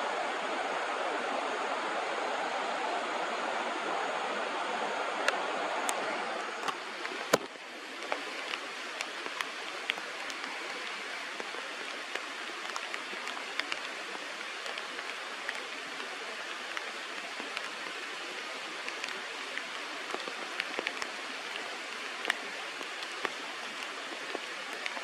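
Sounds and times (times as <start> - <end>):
river water rushing: 0.0 - 25.0
faint sharp clicks: 6.6 - 25.0.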